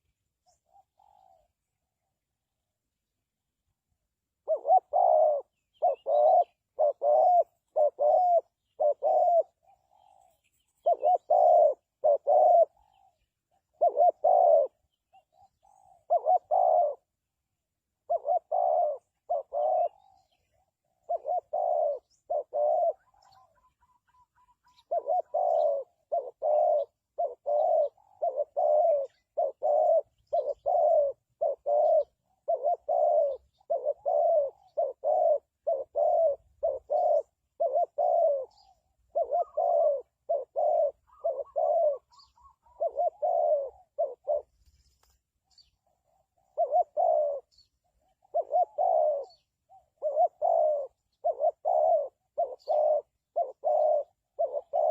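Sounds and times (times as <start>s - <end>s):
dove cooing: 0.0s - 3.0s, 3.6s - 54.9s.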